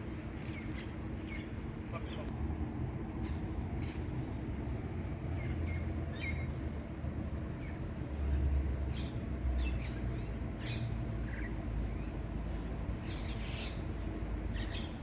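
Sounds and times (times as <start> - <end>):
steady low rumble: 1.3 - 8.1.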